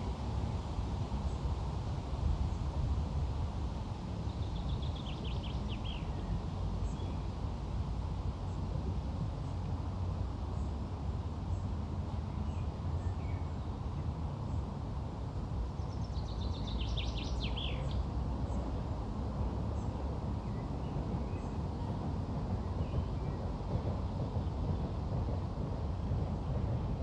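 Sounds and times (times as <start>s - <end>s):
low outdoor rumble: 0.0s - 27.0s
bird singing trill: 15.8s - 18.0s.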